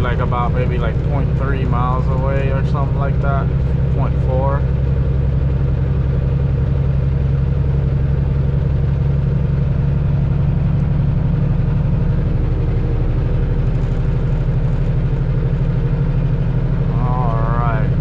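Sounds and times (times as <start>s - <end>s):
truck diesel engine droning: 0.0s - 18.0s.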